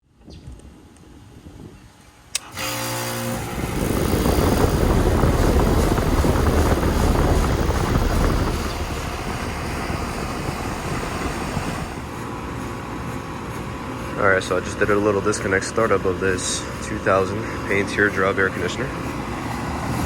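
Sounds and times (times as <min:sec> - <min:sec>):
condenser fan spinning up: 0:00.6 - 0:20.0
compressor humming: 0:02.1 - 0:13.2.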